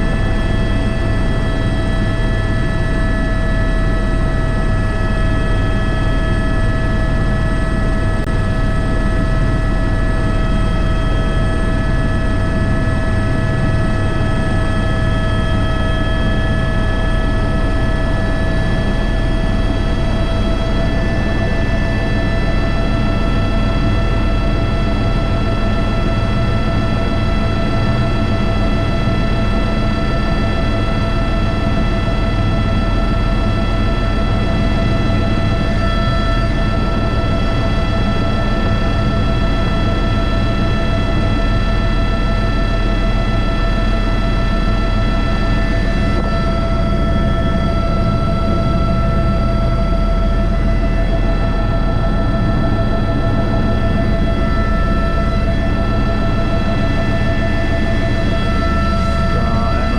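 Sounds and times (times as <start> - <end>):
helicopter turbine whine: 0.0 - 59.9
low rotor rumble: 0.0 - 59.9
turbine and gearbox whine: 45.2 - 59.9
helicopter rotor thrum: 45.4 - 59.9.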